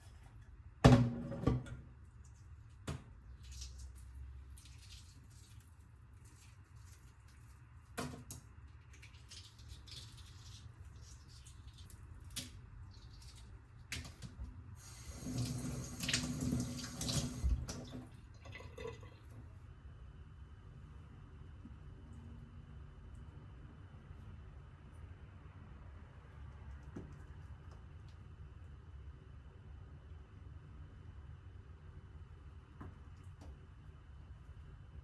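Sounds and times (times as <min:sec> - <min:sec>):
kitchen tap running: 0:14.8 - 0:19.3.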